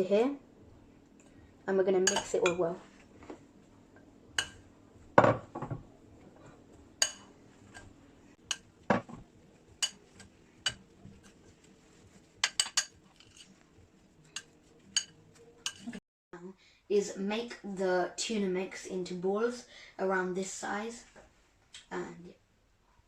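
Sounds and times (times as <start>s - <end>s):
utensil clinking against bowl: 14.3s - 16.0s.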